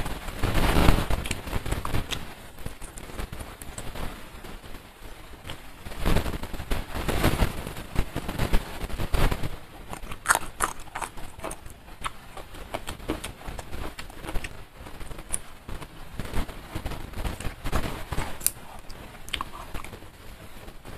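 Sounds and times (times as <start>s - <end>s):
close chewing mouth sounds: 9.8s - 15.4s, 18.2s - 20.0s.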